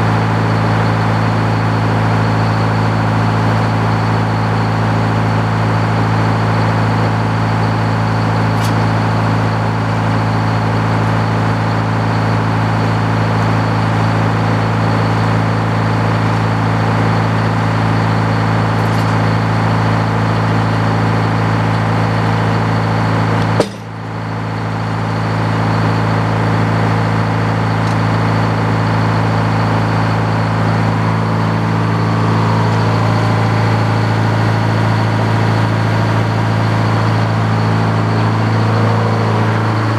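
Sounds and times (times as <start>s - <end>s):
sawmill engine running: 0.0s - 39.9s
sharp knock: 23.6s - 24.0s.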